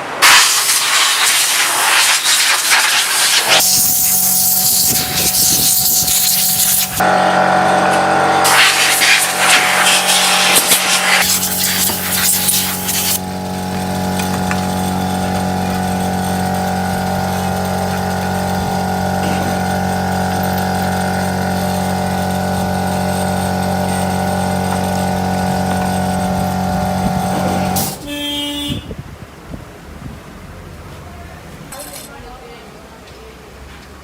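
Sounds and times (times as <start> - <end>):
electric motor humming: 3.3 - 28.0.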